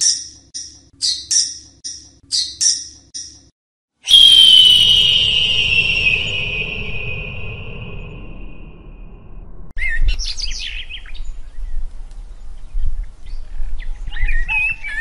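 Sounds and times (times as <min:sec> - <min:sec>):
small birds chirping: 0:00.0 - 0:03.5
high-pitched tone: 0:04.1 - 0:09.5.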